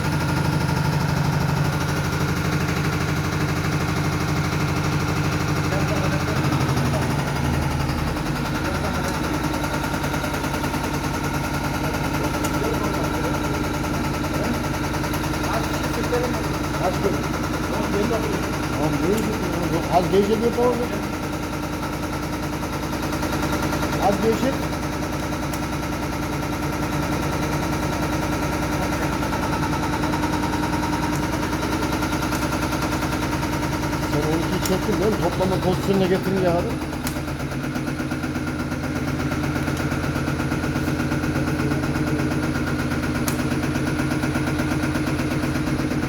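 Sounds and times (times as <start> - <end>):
bench motor hum: 0.0 - 46.0
rapid mechanical clatter: 0.0 - 46.0
rattle of pump strokes: 0.1 - 46.0.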